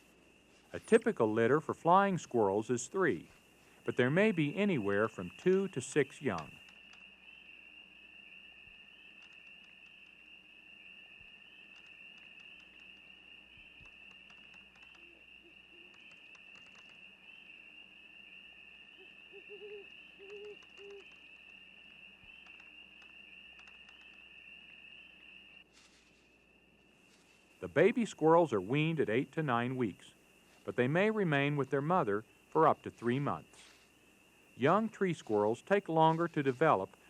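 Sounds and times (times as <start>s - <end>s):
low hooting calls: 0.0s - 25.6s
insect chorus trilling: 0.0s - 37.0s.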